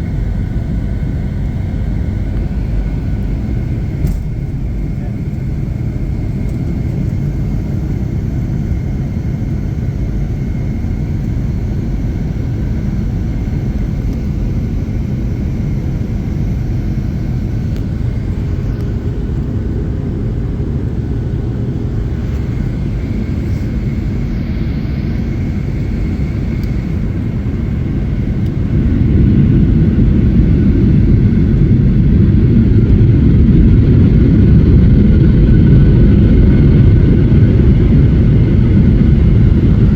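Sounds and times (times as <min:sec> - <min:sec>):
jet engine high whine: 0:00.0 - 0:39.9
jet engines rumbling: 0:00.0 - 0:39.9.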